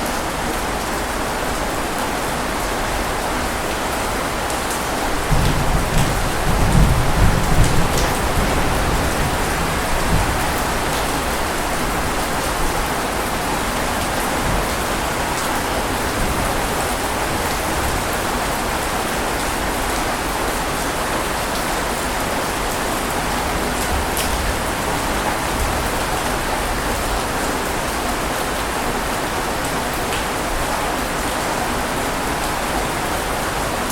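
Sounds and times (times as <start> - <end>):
rain falling: 0.0 - 33.9
thunder rumbling: 5.0 - 18.8.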